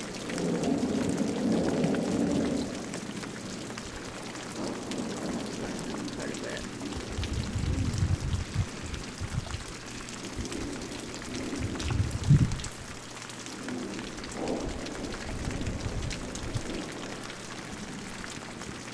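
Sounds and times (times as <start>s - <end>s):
steady rain with drops ticking: 0.0s - 18.9s
low rumble: 4.6s - 9.7s, 10.4s - 12.8s.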